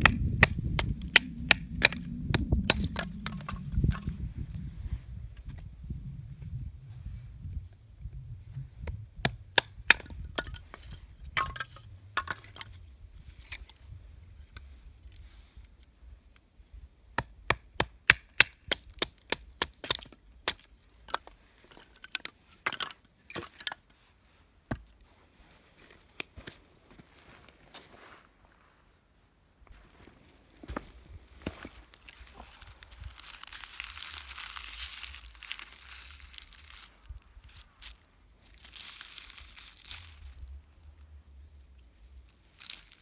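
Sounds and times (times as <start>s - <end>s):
wood being struck and cracked: 0.0s - 4.1s, 8.8s - 12.8s, 17.2s - 21.3s.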